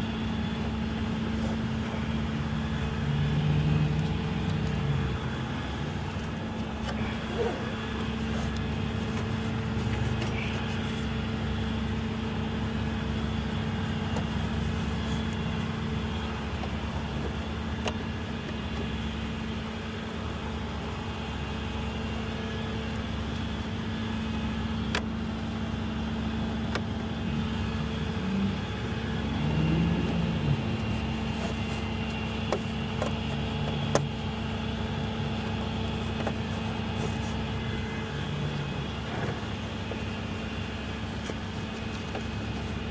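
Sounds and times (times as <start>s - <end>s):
motor vehicle running: 0.0s - 42.9s.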